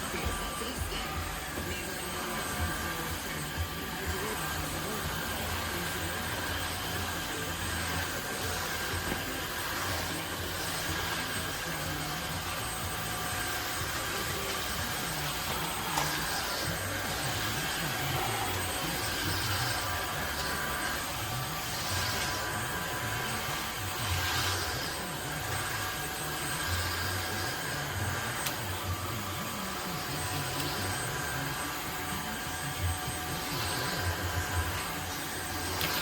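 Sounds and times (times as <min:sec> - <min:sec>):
vacuum cleaner motor whir: 0:00.0 - 0:36.0.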